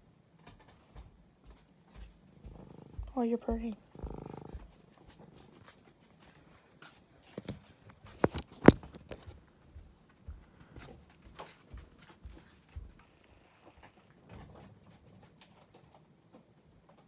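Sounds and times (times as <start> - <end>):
cat moving with taps and rustles: 4.4 - 12.9.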